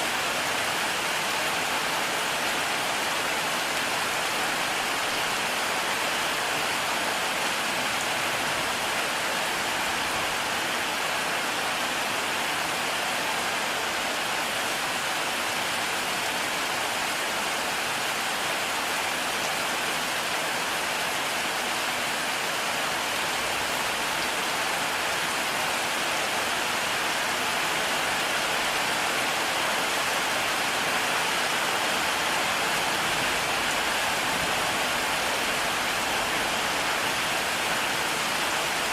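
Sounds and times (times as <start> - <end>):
heavy rain hissing: 22.8 - 38.9.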